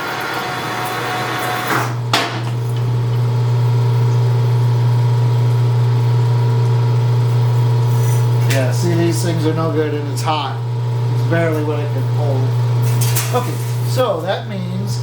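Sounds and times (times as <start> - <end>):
metal lathe humming: 0.0 - 6.2.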